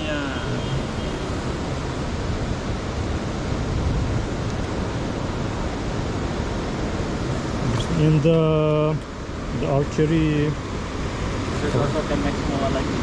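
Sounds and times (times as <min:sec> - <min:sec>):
wind noise: 0:00.0 - 0:08.2
ocean surf: 0:00.0 - 0:13.0.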